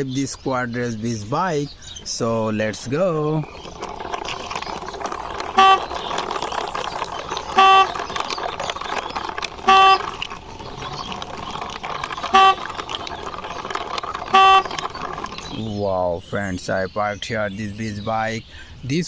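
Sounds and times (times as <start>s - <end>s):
toy rustling as pushed: 1.0s - 16.4s
toy electronic horn beeps: 5.4s - 6.3s, 7.4s - 8.4s, 9.3s - 10.3s, 12.1s - 12.9s, 14.2s - 15.1s.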